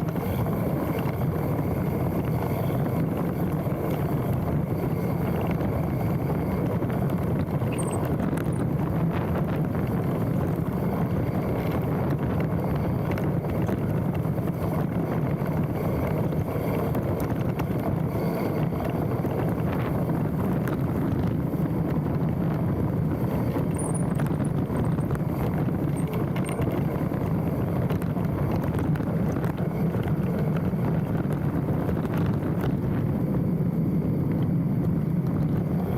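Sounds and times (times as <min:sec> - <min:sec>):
bike rattles and clicks: 0:00.0 - 0:35.9
wind rush on microphone: 0:00.0 - 0:35.9.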